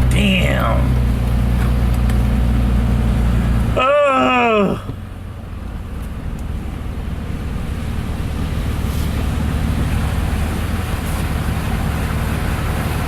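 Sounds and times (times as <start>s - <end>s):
truck engine humming: 0.0s - 13.0s
tyres rushing through floodwater: 6.6s - 13.0s.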